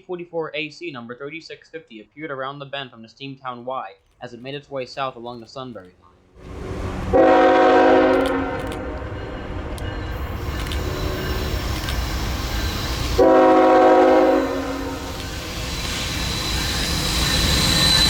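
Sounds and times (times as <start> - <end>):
train rumble: 5.8 - 18.0
locomotive air horn blasts: 6.4 - 15.7.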